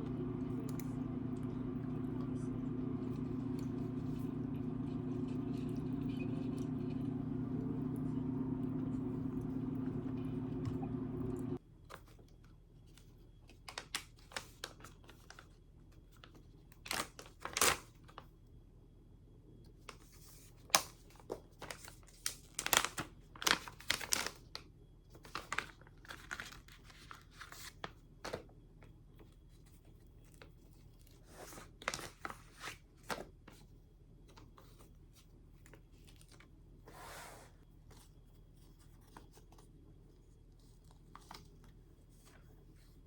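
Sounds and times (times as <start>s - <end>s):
paper tearing and crinkling: 16.9s - 17.8s.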